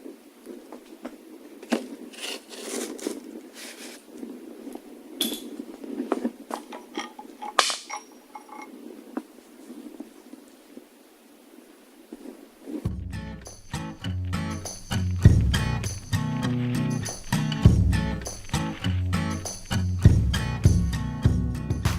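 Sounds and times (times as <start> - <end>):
metal tools clinking and scraping: 6.5 - 8.8
metal clank with ringing: 6.8 - 8.7.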